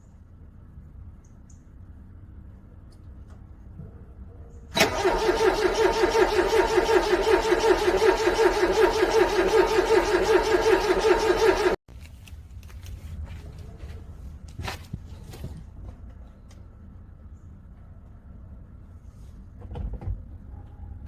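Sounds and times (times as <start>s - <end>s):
car engine cranking: 4.7s - 11.8s.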